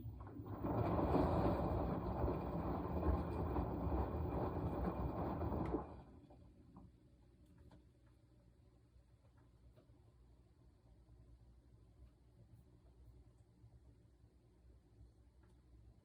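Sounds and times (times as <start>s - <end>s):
washing machine drum churning: 0.0s - 6.6s.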